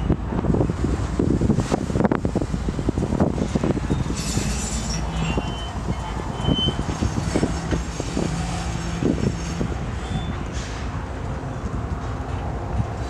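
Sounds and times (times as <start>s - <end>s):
train cars rumbling past: 0.0s - 13.0s
wheels clunking on rails: 1.6s - 13.0s
high metallic squeals: 3.8s - 10.7s.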